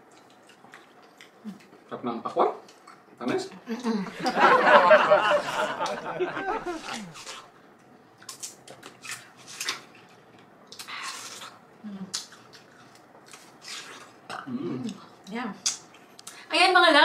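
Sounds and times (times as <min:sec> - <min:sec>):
eating juicy watermelon: 0:06.6 - 0:07.5, 0:08.2 - 0:16.3.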